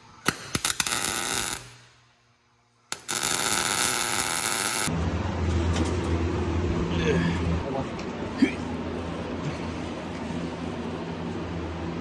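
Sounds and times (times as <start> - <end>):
arc welding crackle: 0.0 - 2.0, 2.9 - 4.9.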